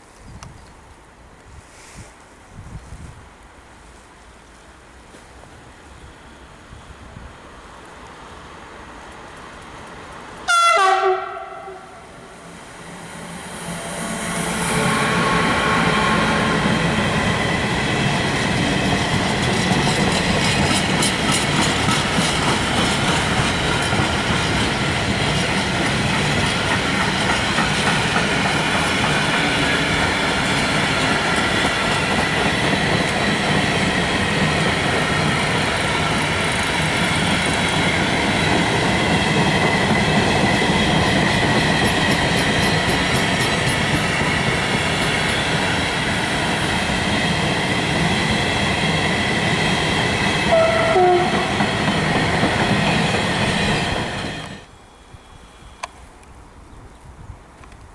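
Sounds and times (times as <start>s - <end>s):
train wheels clattering over rail joints: 17.2s - 54.6s.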